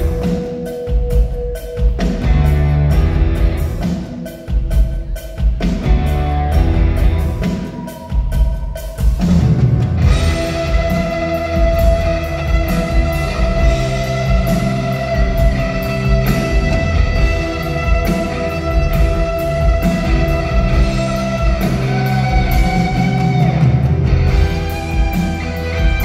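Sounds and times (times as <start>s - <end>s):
rock band playing live: 0.0s - 26.0s
guitar long held notes: 9.6s - 26.0s.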